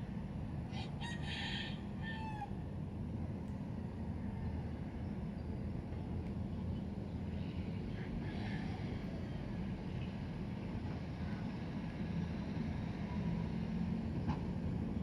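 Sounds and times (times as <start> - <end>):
rooster crowing: 0.7 - 2.5.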